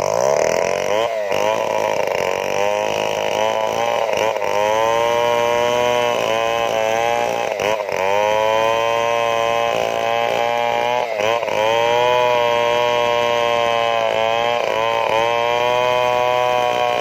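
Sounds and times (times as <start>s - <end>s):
chainsaw running at high revs: 0.0s - 17.0s.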